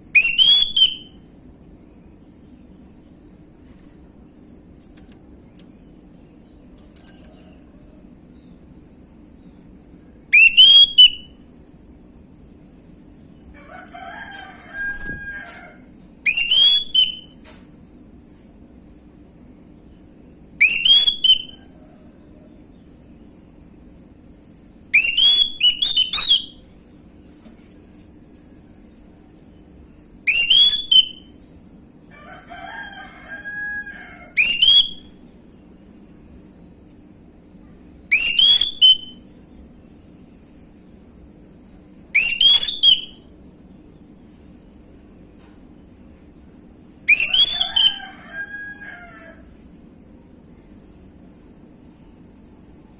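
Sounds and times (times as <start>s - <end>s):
bird whistled phrases: 0.2s - 1.2s, 10.3s - 11.3s, 16.3s - 17.3s, 20.6s - 21.6s, 25.0s - 26.6s, 30.3s - 31.3s, 34.4s - 35.1s, 38.1s - 39.2s, 42.2s - 43.2s, 47.1s - 48.0s.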